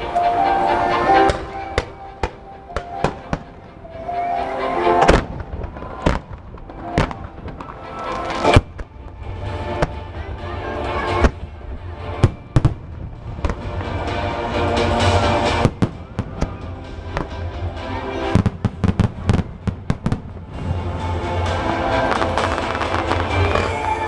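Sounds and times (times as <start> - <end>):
show music: 0.0 - 24.0
fireworks bangs: 1.2 - 3.7, 5.0 - 10.3, 18.2 - 21.2, 21.8 - 24.0.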